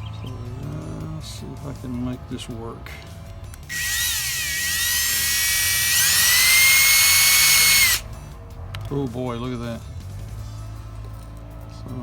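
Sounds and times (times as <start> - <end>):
electric drill whining: 3.7 - 8.0.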